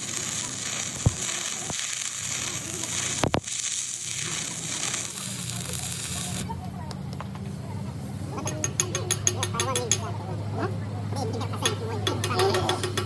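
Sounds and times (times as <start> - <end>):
arc welding crackling hiss: 0.0 - 6.5.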